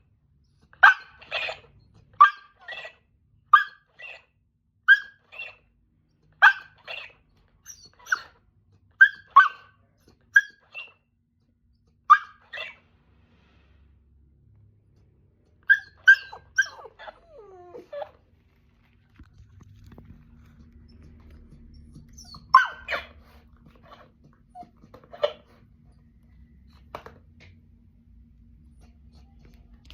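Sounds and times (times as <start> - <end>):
dog yips and barks: 0.6 - 5.7, 6.4 - 11.0, 12.0 - 12.8, 15.6 - 18.2, 21.9 - 25.6.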